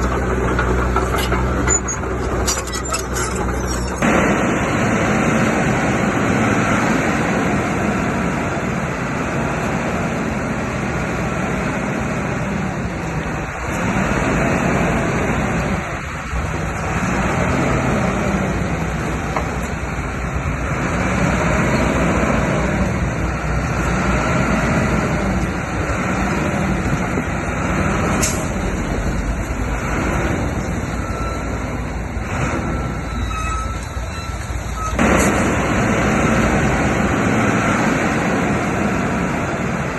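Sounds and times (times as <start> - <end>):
heavy diesel machinery engine: 0.0 - 39.9.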